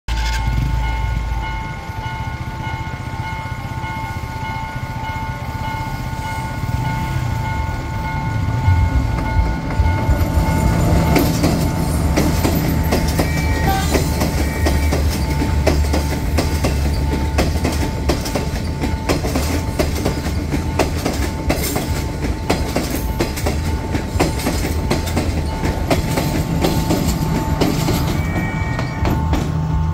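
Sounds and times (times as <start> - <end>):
crossing warning bell ringing: 0.1 - 29.9
train wheels clacking over rail joints: 8.8 - 29.7.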